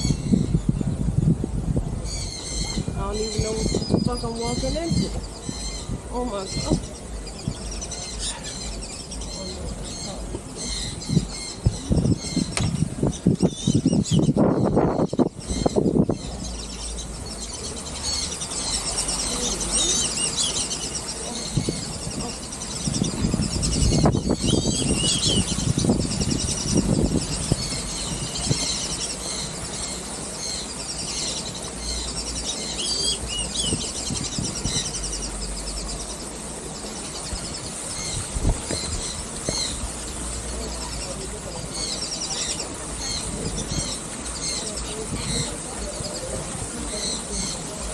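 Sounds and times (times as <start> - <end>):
birds squeaky chattering calls: 0.0 - 1.1, 1.7 - 47.9.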